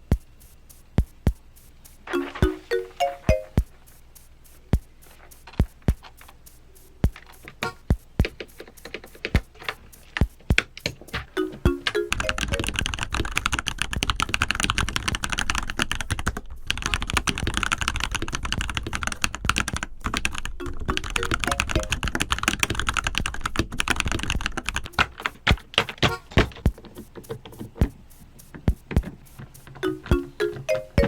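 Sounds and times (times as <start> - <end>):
fast typing on mechanical keyboard: 7.1 - 11.1, 11.8 - 27.7.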